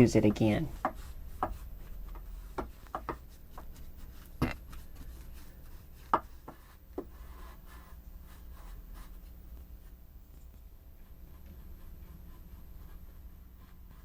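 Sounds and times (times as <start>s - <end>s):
soft rubbing sounds: 0.0s - 14.0s
light taps and knocks: 0.8s - 3.8s.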